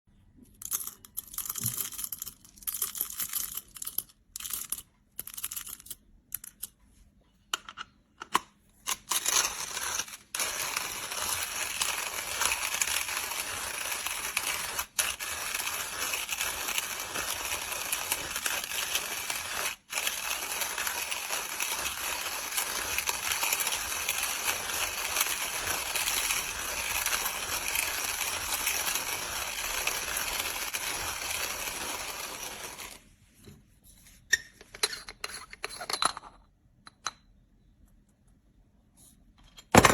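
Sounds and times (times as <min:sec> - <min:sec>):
hand coffee grinder grinding beans: 0:08.9 - 0:33.0.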